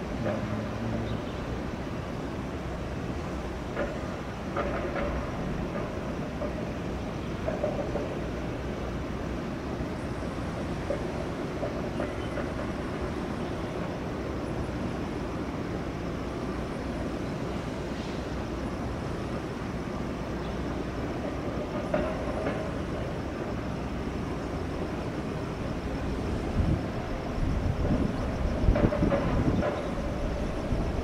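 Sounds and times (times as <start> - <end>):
freight train rolling past: 0.0 - 31.0
wheel-on-rail noise: 0.0 - 31.0.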